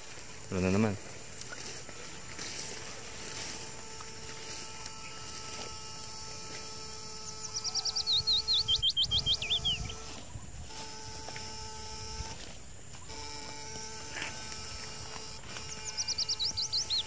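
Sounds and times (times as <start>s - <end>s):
faint steady hum: 0.0s - 17.0s
rustling in vegetation: 0.0s - 17.0s
songbird whistling: 7.2s - 10.0s, 15.7s - 17.0s.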